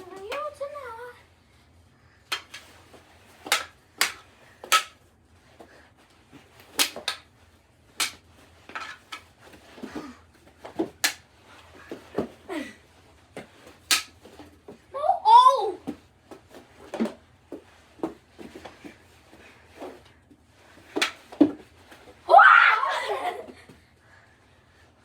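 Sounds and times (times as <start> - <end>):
hockey sticks and ball clacking: 0.0 - 0.6, 2.3 - 5.1, 6.6 - 7.3, 8.0 - 11.2, 13.4 - 14.8, 20.7 - 22.1.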